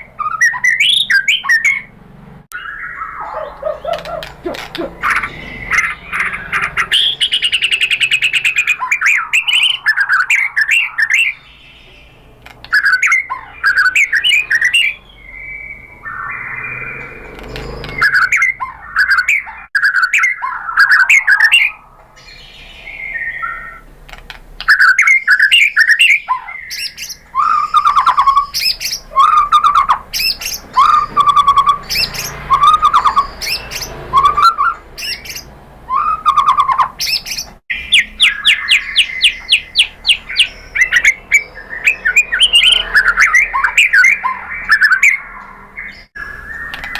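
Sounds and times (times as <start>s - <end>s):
bird singing whistled phrases: 0.0s - 1.9s, 2.5s - 17.2s, 17.8s - 23.8s, 24.6s - 46.9s
bird clicking chatter: 3.3s - 5.4s, 46.7s - 46.9s.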